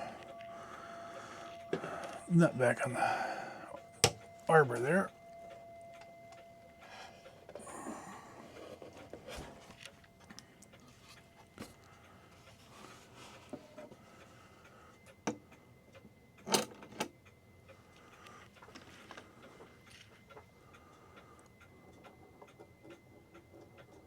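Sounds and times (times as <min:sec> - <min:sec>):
clock ticking: 0:00.0 - 0:06.9
clicks and knocks on clock: 0:04.0 - 0:04.5.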